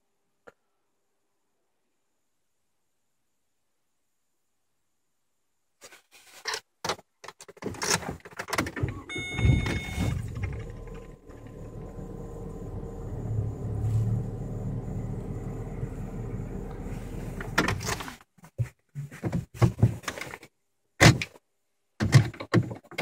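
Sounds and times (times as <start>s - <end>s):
car engine low hum: 8.8s - 18.2s
scattered knocks and rustles: 17.4s - 21.3s, 22.0s - 23.0s.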